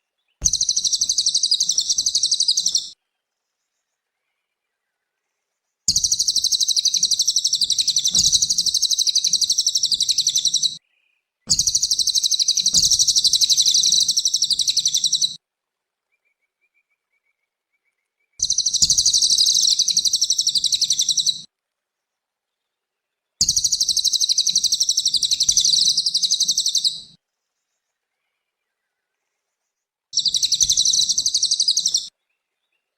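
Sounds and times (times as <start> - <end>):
songbird chattering trill: 0.4 - 2.9, 5.9 - 10.8, 11.5 - 15.4, 18.4 - 21.4, 23.4 - 27.1, 30.2 - 32.1.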